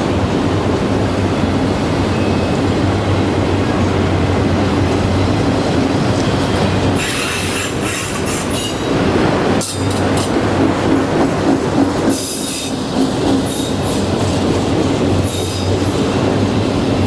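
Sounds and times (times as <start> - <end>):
train rumbling past: 0.0 - 17.0
train wheel squeal: 1.3 - 3.2, 6.9 - 9.9, 11.8 - 17.0.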